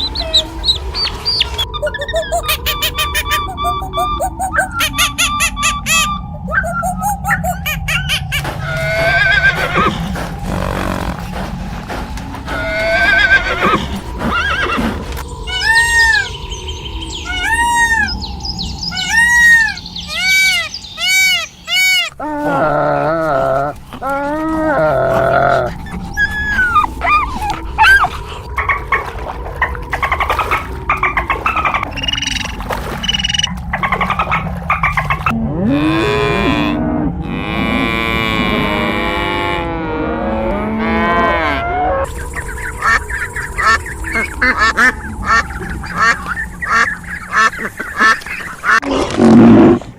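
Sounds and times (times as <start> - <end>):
bird chirping: 0.0 - 12.0, 12.7 - 22.2
animal short calls: 8.4 - 11.5
horse whinnying: 8.7 - 11.3, 12.6 - 14.9
cow mooing: 8.8 - 14.2.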